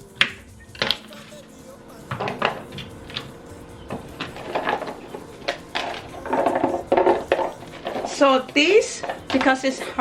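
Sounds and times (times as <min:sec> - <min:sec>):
utensils and dishes clinking: 0:00.0 - 0:10.0.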